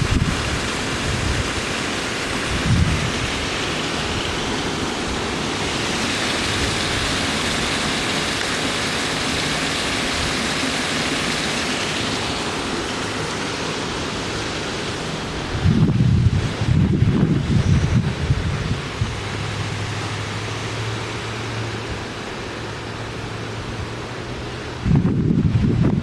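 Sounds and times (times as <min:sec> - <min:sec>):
storm wind howling: 0:00.0 - 0:07.7, 0:12.2 - 0:20.5, 0:24.8 - 0:26.0
wind gust thump on microphone: 0:02.5 - 0:03.4, 0:15.5 - 0:19.4, 0:24.8 - 0:26.0.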